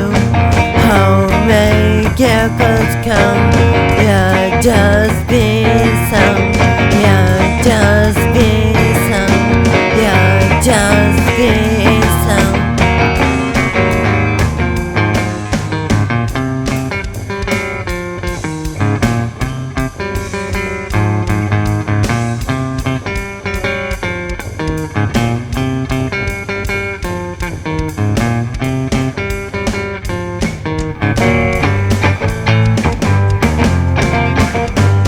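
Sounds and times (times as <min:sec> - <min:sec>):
grunge rock guitar: 0:00.0 - 0:35.0
steady drum beat: 0:00.0 - 0:35.0.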